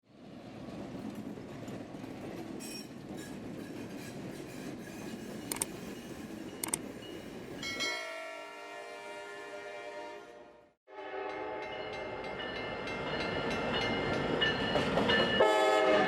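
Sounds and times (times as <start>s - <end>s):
train rumbling on rails: 0.1s - 8.3s, 11.6s - 16.0s
sharp clicks: 5.5s - 5.7s, 6.6s - 6.8s
locomotive horn: 8.0s - 12.1s, 15.4s - 16.0s.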